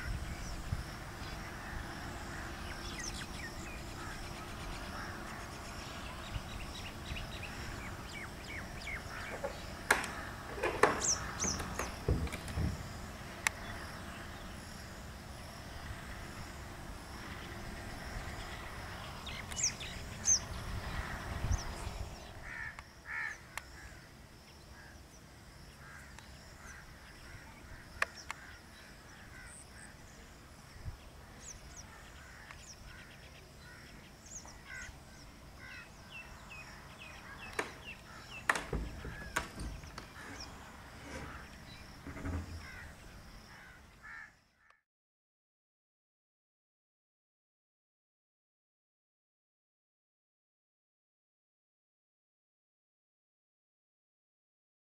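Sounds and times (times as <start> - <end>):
birds chirping: 0.0 - 16.2, 17.2 - 44.4.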